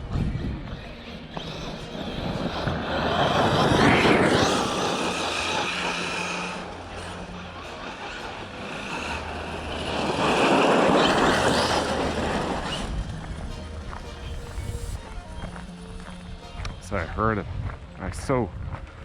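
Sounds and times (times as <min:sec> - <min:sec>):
electric motor whining: 0:00.0 - 0:17.8
tyres on dirt: 0:00.1 - 0:19.0.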